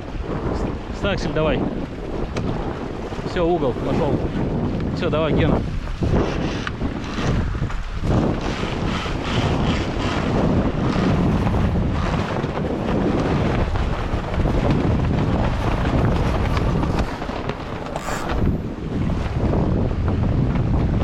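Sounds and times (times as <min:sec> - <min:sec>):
wind buffeting microphone: 0:00.0 - 0:21.0
brief high hiss: 0:17.8 - 0:18.7.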